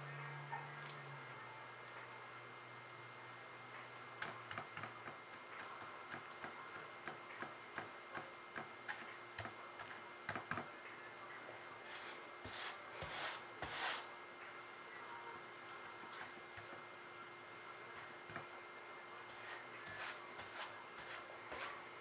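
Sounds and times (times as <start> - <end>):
brush rubbing strokes: 11.9 - 14.1, 19.3 - 21.8.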